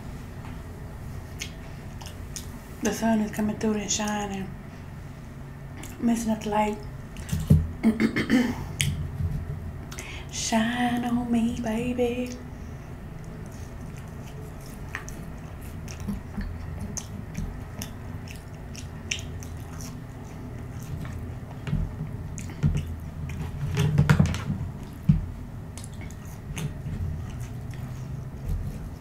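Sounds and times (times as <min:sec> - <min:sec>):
close chewing: 0:01.3 - 0:02.6, 0:13.1 - 0:23.9, 0:24.5 - 0:29.0.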